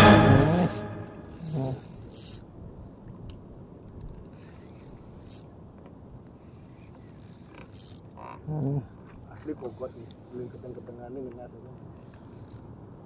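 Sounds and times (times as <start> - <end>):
fishing reel ratchet clicking: 1.3 - 2.5, 7.0 - 8.1.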